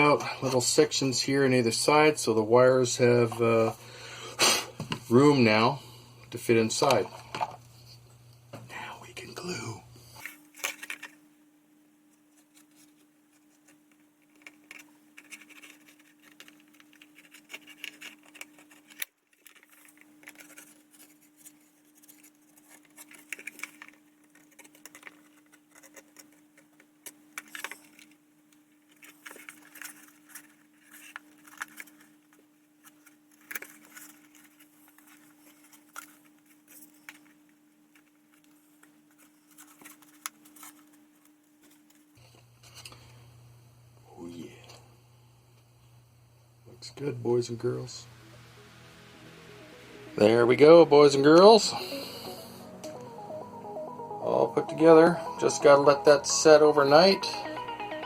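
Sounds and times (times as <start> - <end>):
low hum: 44.9 - 58.0.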